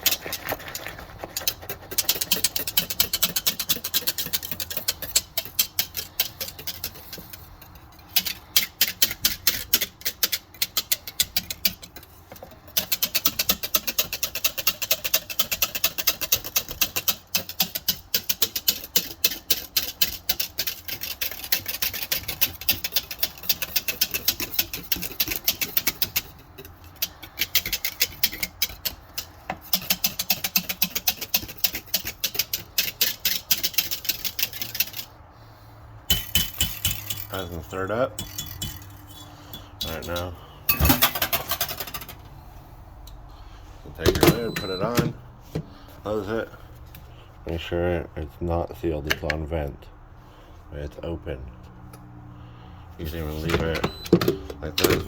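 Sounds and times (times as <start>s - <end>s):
metal whisk clinking against pot: 1.4s - 12.0s, 12.6s - 35.1s, 36.1s - 37.6s, 38.2s - 42.1s.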